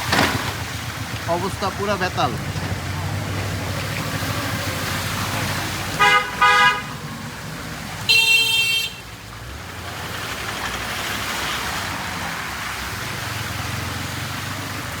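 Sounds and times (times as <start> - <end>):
low engine hum: 0.0 - 15.0
traffic hiss on wet road: 0.0 - 15.0
high-pitched vehicle horn: 6.0 - 7.0, 8.1 - 9.0.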